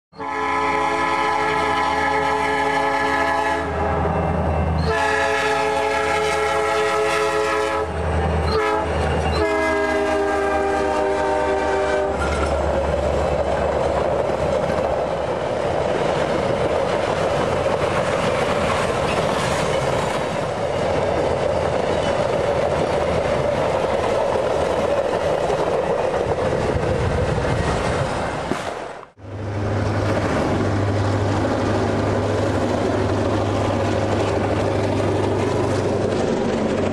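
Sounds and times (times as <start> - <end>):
train air horn blasts: 0.1 - 12.4
train cars rumbling on rails: 0.1 - 36.9.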